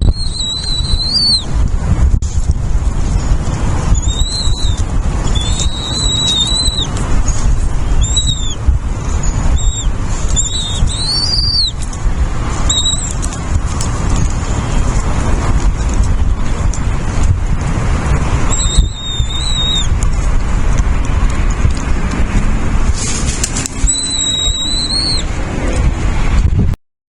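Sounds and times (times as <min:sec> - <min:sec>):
bird whistled calls: 0:00.0 - 0:01.5, 0:03.9 - 0:08.6, 0:09.2 - 0:11.8, 0:12.6 - 0:13.2, 0:18.5 - 0:19.9, 0:23.8 - 0:25.3
loud steady low rumble: 0:00.0 - 0:26.8.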